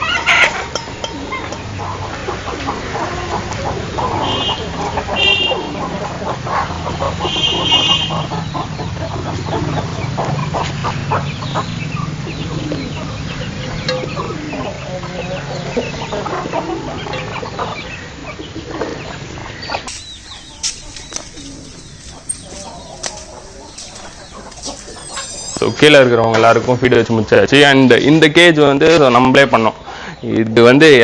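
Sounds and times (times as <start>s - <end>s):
chickens clucking: 19.9s - 26.0s.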